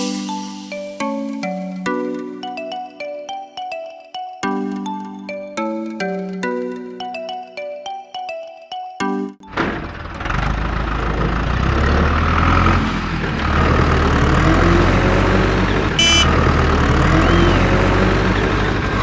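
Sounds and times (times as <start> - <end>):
vehicle engine rumbling: 9.5 - 19.0
short high beep: 16.0 - 16.3.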